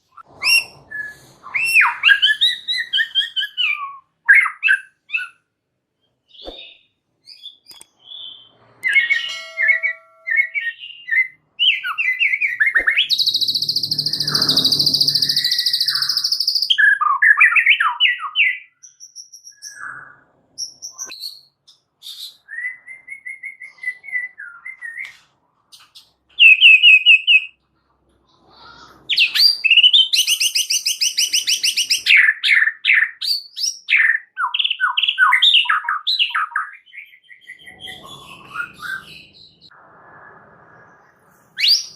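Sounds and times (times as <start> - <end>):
bird singing whistled phrases: 0.4 - 5.4, 6.3 - 25.1, 41.6 - 41.9.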